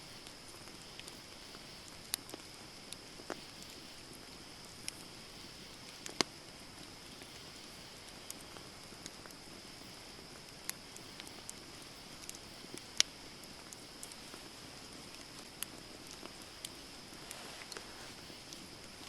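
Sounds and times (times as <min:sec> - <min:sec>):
soft fire hiss: 0:00.0 - 0:19.0
campfire crackling and popping: 0:00.1 - 0:19.0.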